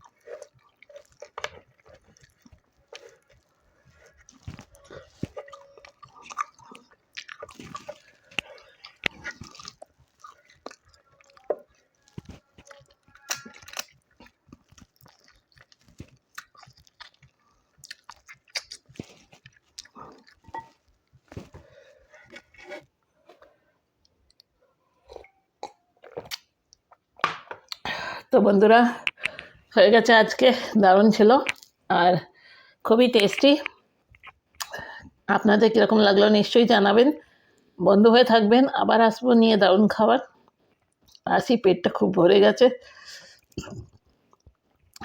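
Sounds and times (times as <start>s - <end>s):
crunching bites: 0.0s - 22.8s
person chewing food: 0.0s - 27.9s, 29.0s - 29.8s, 31.4s - 31.8s, 33.2s - 35.2s, 40.3s - 41.2s, 43.0s - 45.0s.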